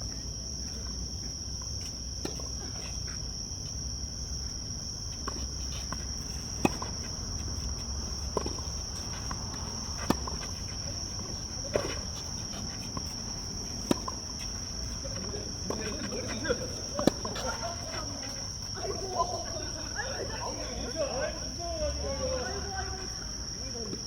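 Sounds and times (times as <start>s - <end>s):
tennis balls being hit: 5.4s - 20.1s.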